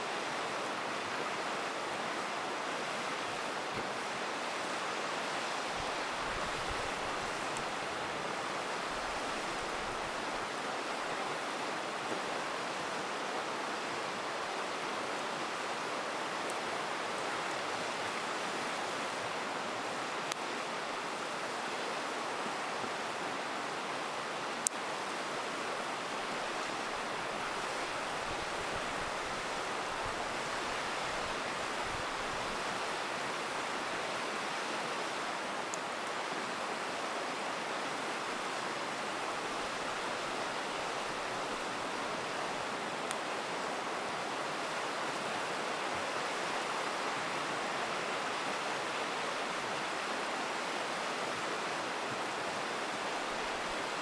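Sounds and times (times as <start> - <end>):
river rushing: 0.0 - 54.0
campfire crackling: 2.5 - 11.0, 24.6 - 33.7, 39.4 - 44.3.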